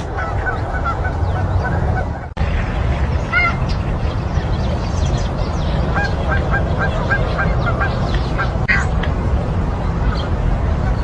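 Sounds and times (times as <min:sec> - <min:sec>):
bird calling: 0:00.0 - 0:02.3, 0:03.2 - 0:09.0
steady low rumble: 0:00.0 - 0:11.0.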